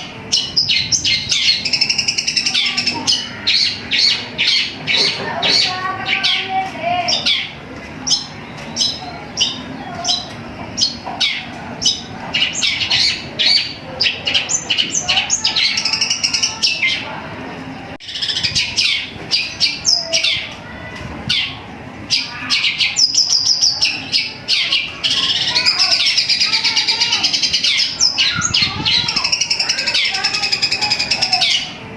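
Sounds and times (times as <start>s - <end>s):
bird singing high chirps: 0.3s - 17.0s.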